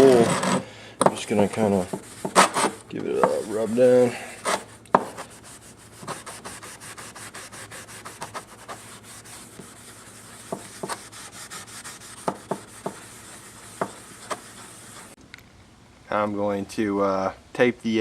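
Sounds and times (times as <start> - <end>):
steel wool scratching metal: 1.2 - 15.2
sharp knocks: 12.2 - 13.0.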